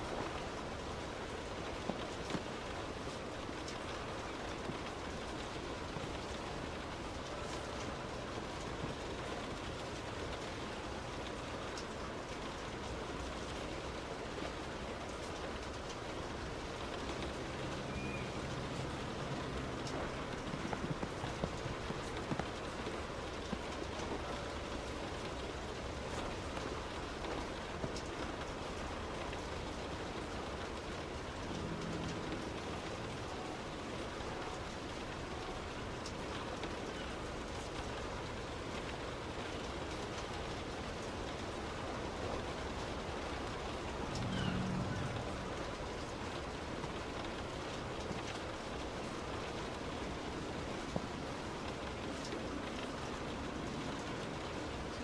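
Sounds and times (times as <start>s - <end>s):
heavy rain on a car: 0.0s - 55.0s
tyres on wet road: 0.0s - 55.0s
raindrops ticking on car: 0.1s - 55.0s
tyre and road noise: 40.8s - 55.0s.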